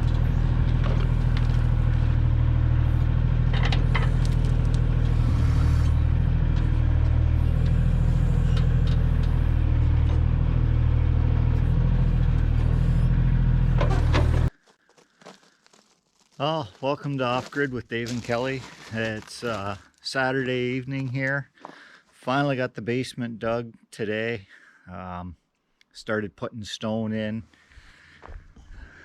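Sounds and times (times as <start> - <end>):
backhoe clanks: 0.0 - 5.3, 6.1 - 14.5
tractor diesel engine running: 0.0 - 14.6, 16.4 - 21.4.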